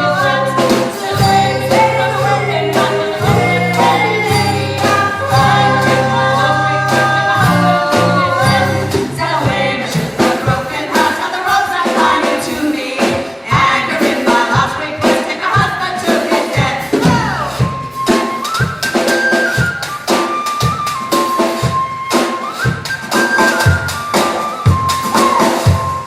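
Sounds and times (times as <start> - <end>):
live band playing: 0.0 - 26.0.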